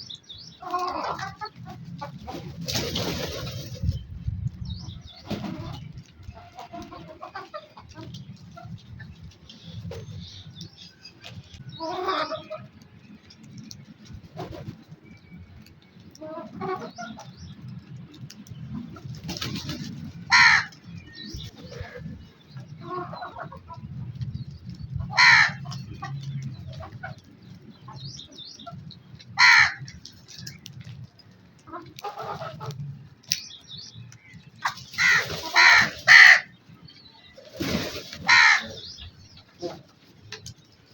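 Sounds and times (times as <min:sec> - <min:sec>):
soft bird chatter: 0:00.0 - 0:40.9
crow cawing: 0:25.2 - 0:25.6, 0:29.4 - 0:29.8, 0:35.0 - 0:36.5, 0:38.3 - 0:38.8.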